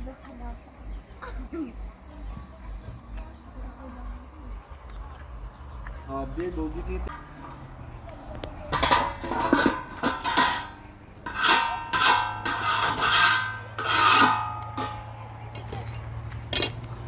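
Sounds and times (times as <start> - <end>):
rasping scraping strokes: 8.7 - 15.8.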